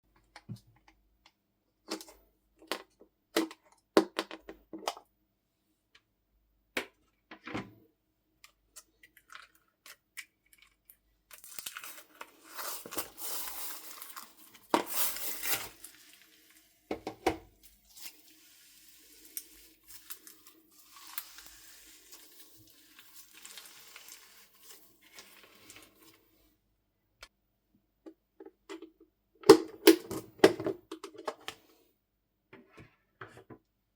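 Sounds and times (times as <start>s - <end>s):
slime crackling and tearing: 19.9s - 25.9s.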